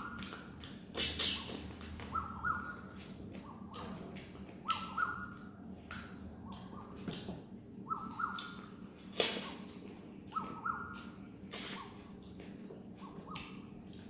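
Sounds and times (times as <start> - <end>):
bird chirping: 0.0 - 0.5, 1.2 - 9.3, 10.2 - 12.1, 12.8 - 13.8
person eating by hand: 0.0 - 4.8, 8.4 - 14.0.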